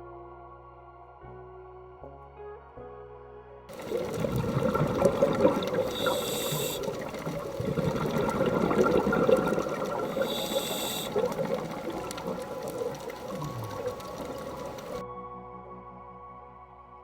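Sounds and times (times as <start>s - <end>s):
water rushing and splashing: 3.7s - 15.0s.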